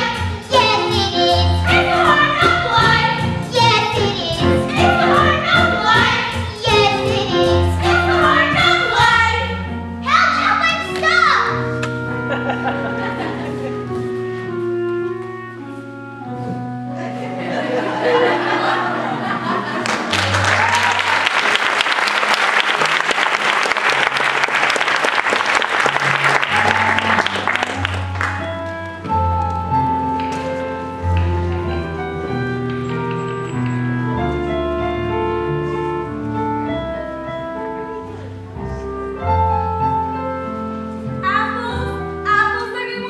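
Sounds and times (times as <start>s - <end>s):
orchestra playing low notes: 0.0s - 43.0s
audience applause: 19.7s - 28.4s.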